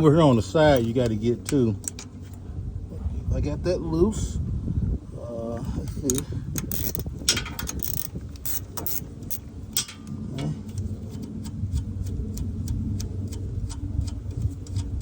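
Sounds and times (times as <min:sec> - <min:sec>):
steady low hum: 0:00.0 - 0:15.0
hand ratchet clicking: 0:06.1 - 0:10.0.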